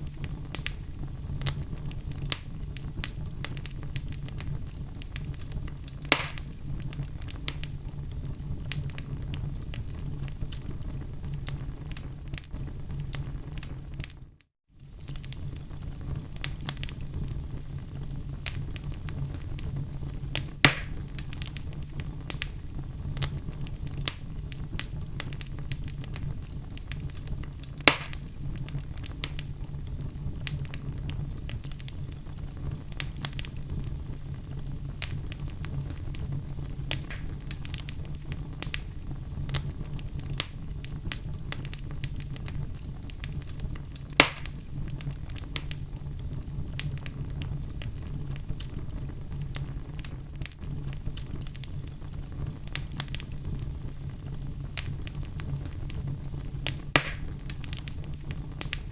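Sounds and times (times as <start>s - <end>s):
logs crackling in fire: 0.0s - 58.9s
low rumble of fire: 0.0s - 58.9s
loud wood pops: 6.1s - 6.5s, 20.6s - 21.0s, 27.9s - 28.2s, 44.2s - 44.5s, 56.9s - 57.4s.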